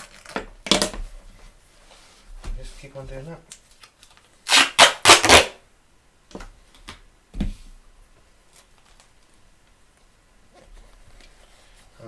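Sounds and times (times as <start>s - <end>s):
tape ripping off roll: 0.0s - 1.0s, 3.8s - 5.6s.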